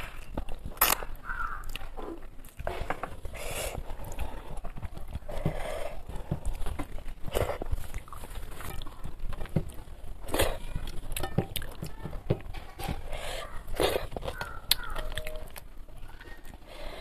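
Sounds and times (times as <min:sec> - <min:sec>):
fingers mixing rice on plate: 0:00.0 - 0:15.7
chewing and lip-smacking: 0:13.7 - 0:16.6.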